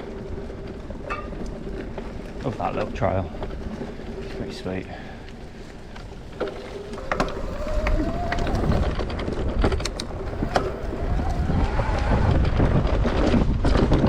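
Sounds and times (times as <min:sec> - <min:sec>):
bike knocking and rattling: 0:00.0 - 0:14.0
tyre and wind rumble: 0:00.0 - 0:14.0
e-bike motor whining: 0:03.4 - 0:13.0.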